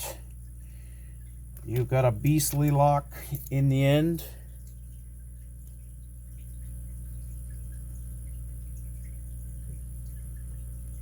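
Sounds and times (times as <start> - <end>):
low electrical hum: 0.0 - 11.0
faint small ticks: 4.5 - 11.0.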